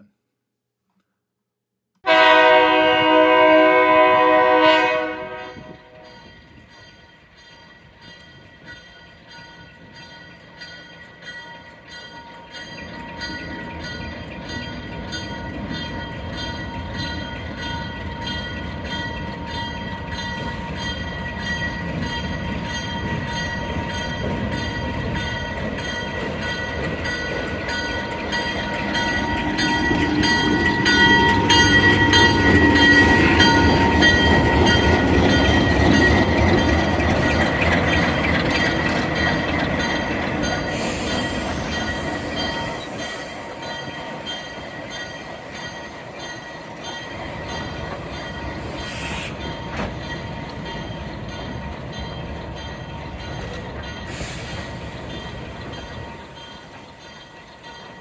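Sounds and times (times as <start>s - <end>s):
train horn chord: 2.0s - 6.1s
train rolling: 2.2s - 58.0s
high wheel squeal: 29.3s - 44.4s, 47.3s - 51.2s.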